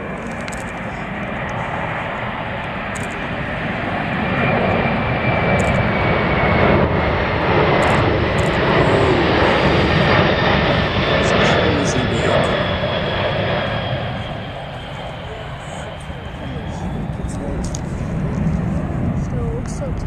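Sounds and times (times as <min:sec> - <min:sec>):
airplane engines droning: 0:00.0 - 0:20.0.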